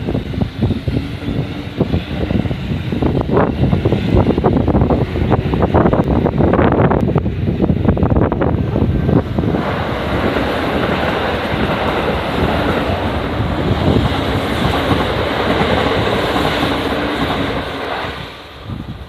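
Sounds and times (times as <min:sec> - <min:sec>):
electric train running noise: 0:00.0 - 0:19.0.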